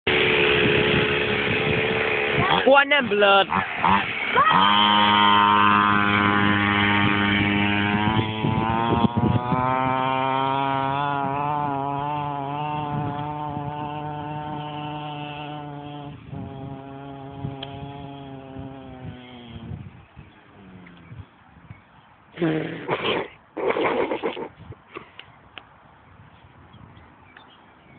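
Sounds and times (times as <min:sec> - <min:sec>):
mini dirt bike engine revving: 0:00.1 - 0:21.3, 0:22.4 - 0:24.6.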